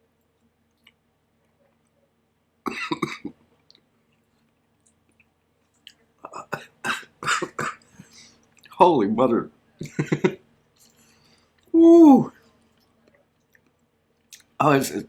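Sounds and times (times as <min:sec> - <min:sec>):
man coughing: 0:02.7 - 0:03.3, 0:06.3 - 0:07.8.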